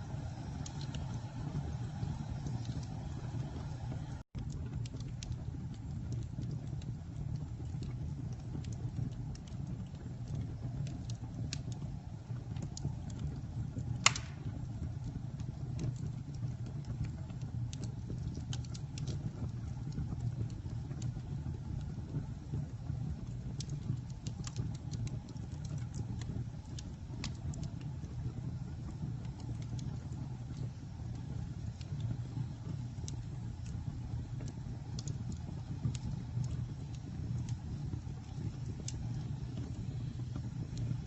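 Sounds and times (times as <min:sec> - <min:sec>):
wood fire crackling: 0:00.0 - 0:41.0
loud fire pop: 0:14.0 - 0:14.7.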